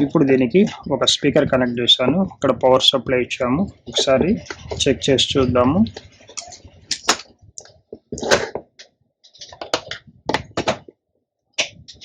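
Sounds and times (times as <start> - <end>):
hands handling board and wires: 3.8 - 11.0.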